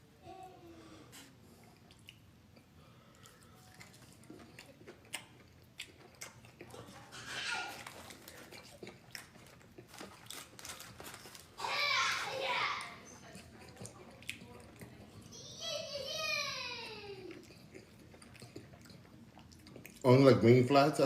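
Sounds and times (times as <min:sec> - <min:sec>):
chewing and biting food: 0:01.5 - 0:11.6, 0:12.8 - 0:15.3, 0:17.3 - 0:20.1
mouth clicks and crunches: 0:01.7 - 0:11.6, 0:12.8 - 0:15.3, 0:17.3 - 0:20.1.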